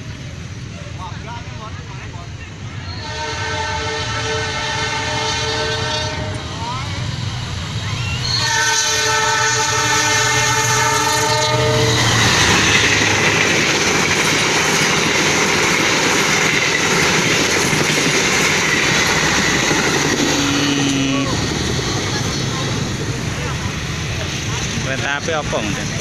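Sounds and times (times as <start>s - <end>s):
train horn: 2.9s - 6.5s, 8.3s - 12.2s, 20.2s - 21.4s
train wheels clattering on rails: 10.2s - 26.0s.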